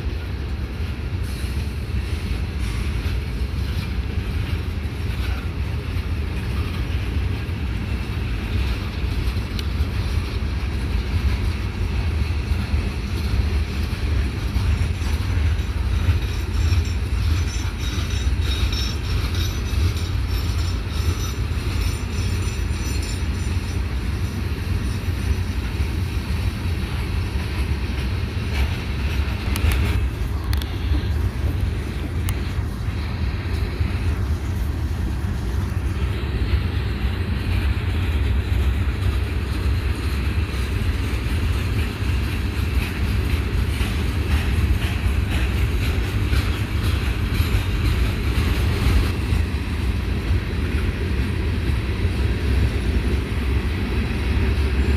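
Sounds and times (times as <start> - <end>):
freight train rumble: 0.0 - 54.9
train clicks and rattles: 0.0 - 54.9.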